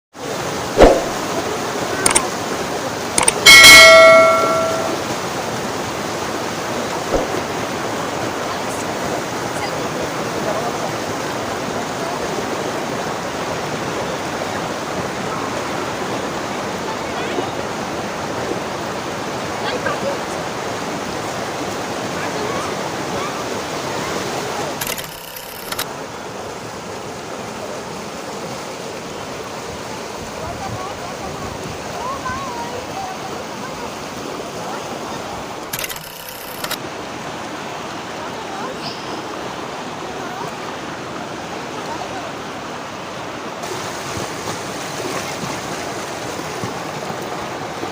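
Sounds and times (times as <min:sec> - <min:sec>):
mountain river rushing: 0:00.2 - 0:47.9
brief clicks: 0:00.8 - 0:01.2, 0:03.2 - 0:05.0, 0:07.1 - 0:07.4, 0:24.8 - 0:25.8, 0:35.7 - 0:36.8
metallic ringing strike: 0:03.5 - 0:05.2.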